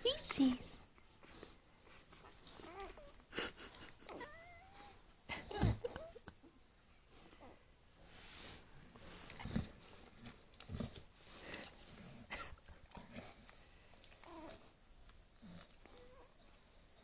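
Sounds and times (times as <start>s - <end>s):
puppies snuffling breaths: 0.0s - 4.2s, 7.0s - 17.0s.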